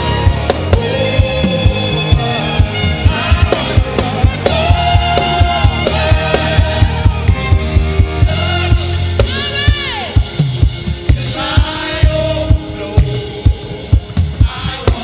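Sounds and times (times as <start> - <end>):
drum kit beat: 0.0 - 15.0
gospel band music: 0.0 - 15.0.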